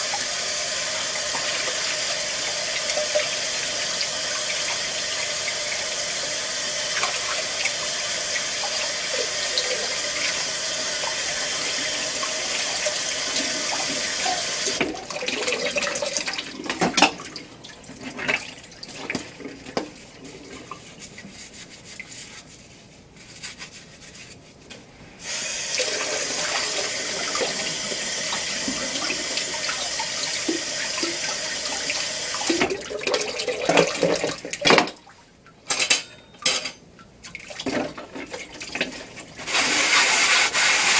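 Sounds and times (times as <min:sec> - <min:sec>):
tap running into a sink: 0:25.8 - 0:35.0
dishes clinking and knocking: 0:35.7 - 0:36.8.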